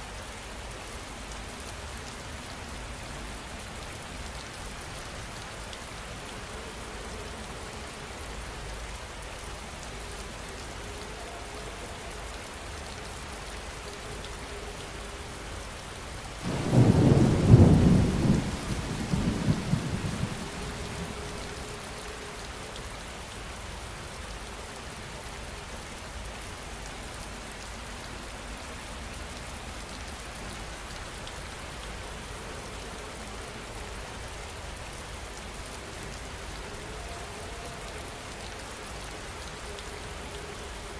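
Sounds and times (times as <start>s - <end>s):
heavy rain: 0.2s - 40.9s
thunder clap rumbling: 16.4s - 22.0s.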